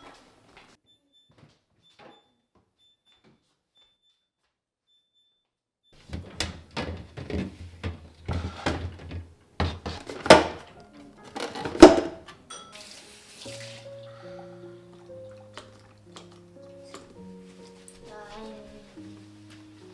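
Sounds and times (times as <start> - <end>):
containers knocking and clunking: 6.0 - 12.5
soft music: 9.4 - 19.9.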